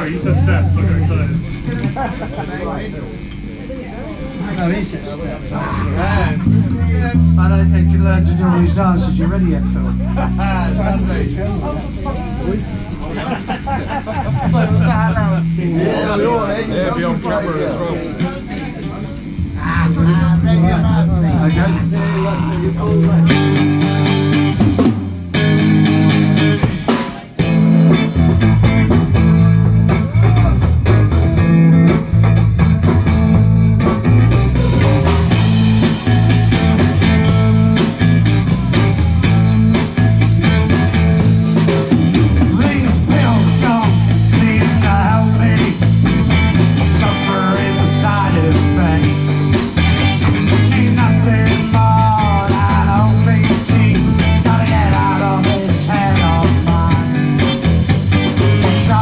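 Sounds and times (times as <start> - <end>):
electric guitar: 0.0 - 4.6, 5.3 - 59.0
bass: 0.0 - 59.0
drum kit: 10.0 - 15.6, 19.4 - 59.0
wavering lead melody: 10.1 - 16.1.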